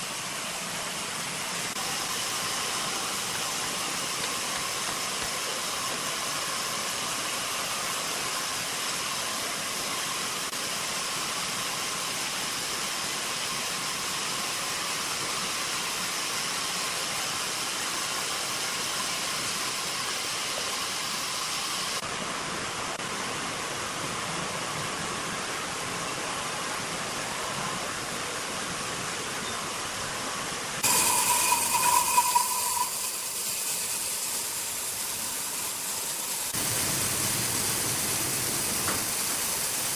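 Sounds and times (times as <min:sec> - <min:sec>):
sawmill machinery hissing and whining: 0:00.0 - 0:22.0, 0:30.8 - 0:39.9.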